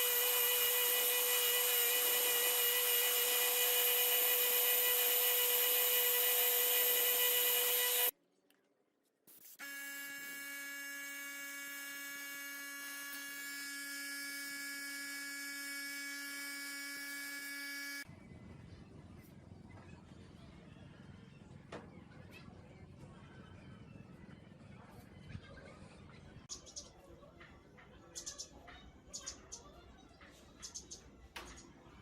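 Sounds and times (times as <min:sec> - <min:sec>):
electric motor whining: 0:00.0 - 0:08.1, 0:09.6 - 0:18.0.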